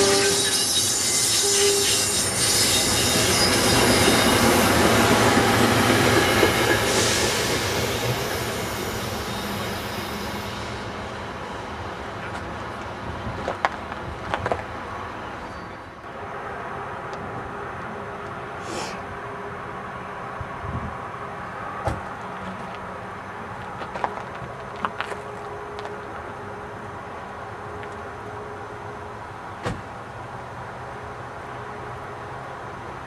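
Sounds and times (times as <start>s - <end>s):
train horn: 0.0s - 4.4s
train passing on rails: 0.0s - 33.0s.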